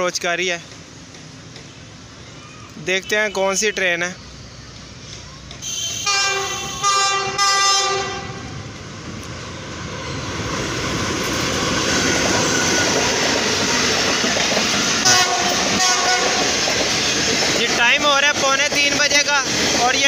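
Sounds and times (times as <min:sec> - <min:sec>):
train coaches passing: 0:00.0 - 0:20.0
train horn blasts: 0:05.6 - 0:08.4, 0:15.0 - 0:16.4.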